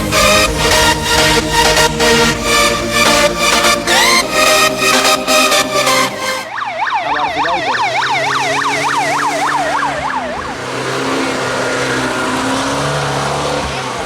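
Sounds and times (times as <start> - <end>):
music: 0.0 - 6.5
emergency siren yelping: 0.0 - 13.5.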